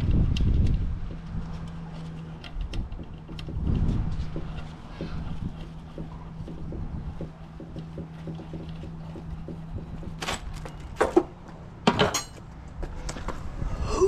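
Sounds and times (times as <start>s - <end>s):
metal tools clanking: 11.8s - 12.5s.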